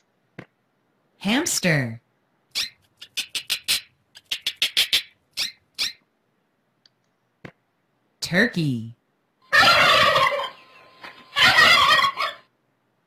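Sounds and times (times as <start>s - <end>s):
hamster squeaking: 2.5s - 6.0s.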